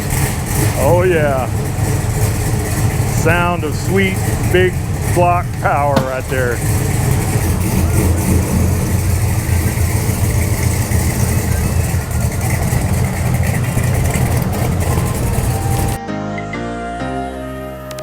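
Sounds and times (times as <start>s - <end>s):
truck engine idling: 0.0s - 16.0s
music: 16.0s - 18.0s.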